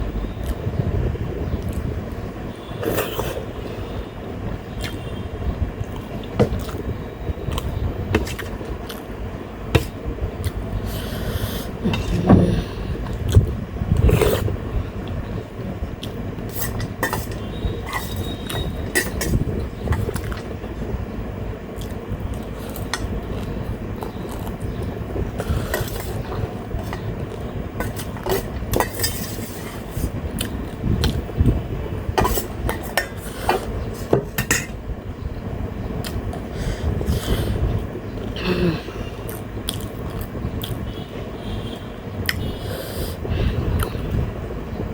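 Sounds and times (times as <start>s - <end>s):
electric fan hum: 0.0s - 44.9s
clinks against a plate: 16.6s - 19.4s, 32.2s - 34.8s.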